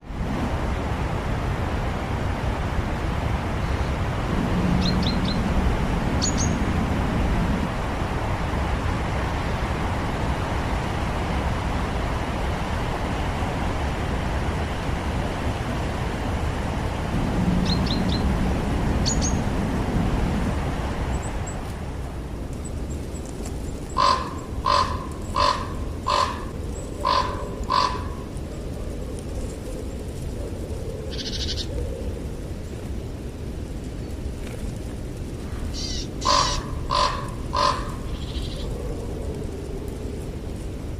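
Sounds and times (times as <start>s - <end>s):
traffic-like background noise: 0.0s - 40.9s
tits chirping: 6.2s - 6.7s, 19.0s - 19.5s, 22.6s - 28.3s, 35.6s - 38.8s.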